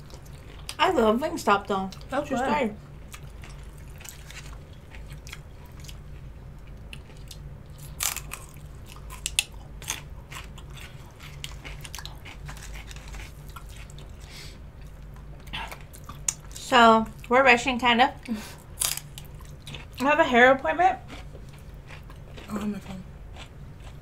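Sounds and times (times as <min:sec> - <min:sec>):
low steady hum: 0:00.0 - 0:24.0
crunchy food chewing: 0:03.1 - 0:17.3, 0:18.6 - 0:20.1, 0:21.0 - 0:24.0.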